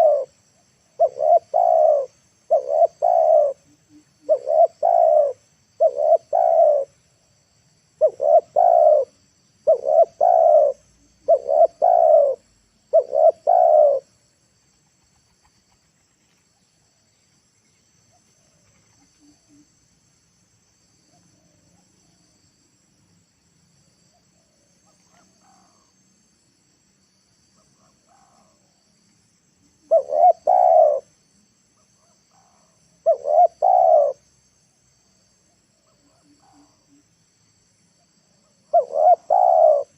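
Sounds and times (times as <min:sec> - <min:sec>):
dove cooing: 0:00.0 - 0:07.0, 0:08.0 - 0:14.1, 0:29.8 - 0:31.1, 0:32.0 - 0:34.2, 0:38.5 - 0:39.9.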